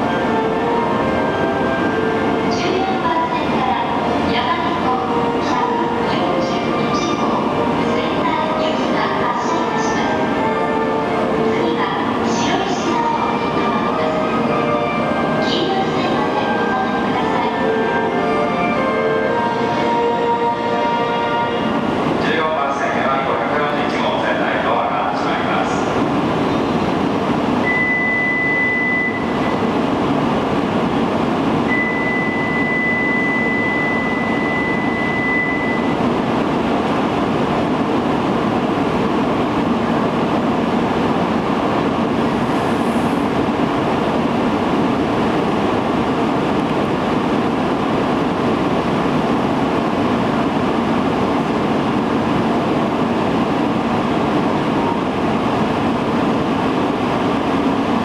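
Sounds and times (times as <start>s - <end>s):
train rumbling: 0.0s - 58.0s
high electronic beep: 27.7s - 29.4s, 31.7s - 35.9s.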